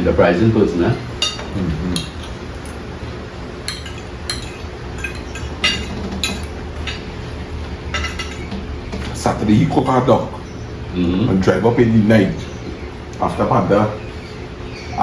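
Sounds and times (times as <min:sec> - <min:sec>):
cutlery clinking against plates: 0:00.9 - 0:02.8, 0:03.6 - 0:09.2.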